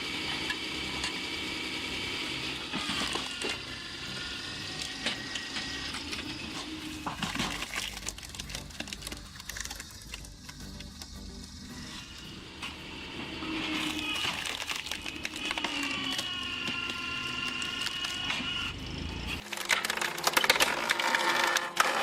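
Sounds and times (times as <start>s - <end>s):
log splitter high whine: 0.0s - 22.0s
wood cracking and splintering: 4.8s - 11.2s, 13.8s - 18.6s, 19.4s - 22.0s.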